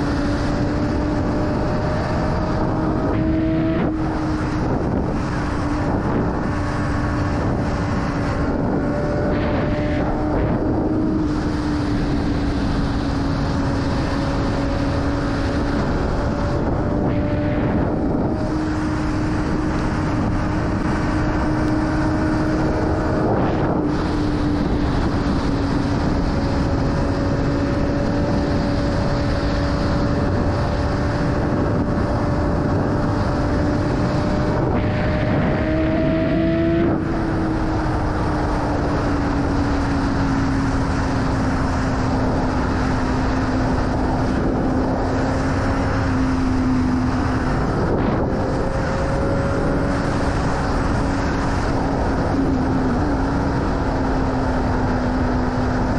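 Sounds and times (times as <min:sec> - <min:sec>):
motorcycle engine at high revs: 0:00.0 - 0:55.9
wind rush: 0:00.0 - 0:55.9.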